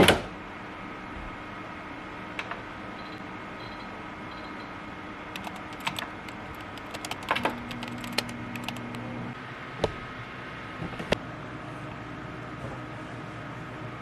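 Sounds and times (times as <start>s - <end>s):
small objects clicking: 5.4s - 9.0s.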